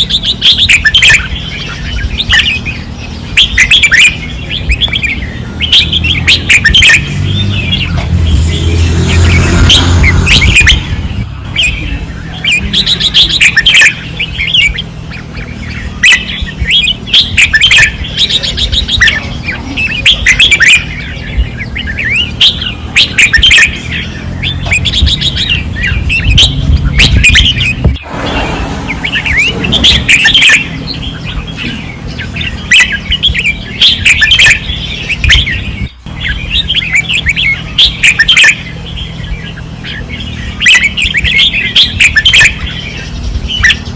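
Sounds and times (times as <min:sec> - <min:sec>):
birds singing chirpy song: 0:00.0 - 0:43.9
steady low hum: 0:23.7 - 0:37.8.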